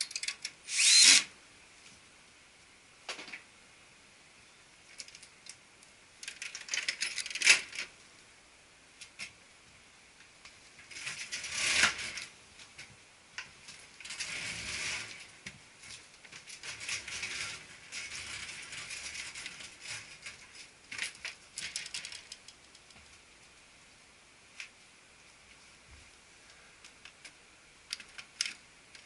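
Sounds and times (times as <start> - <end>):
plastic clicks and rattles: 0.0 - 0.6, 4.9 - 5.6, 6.2 - 7.9, 16.3 - 23.0, 26.8 - 29.0.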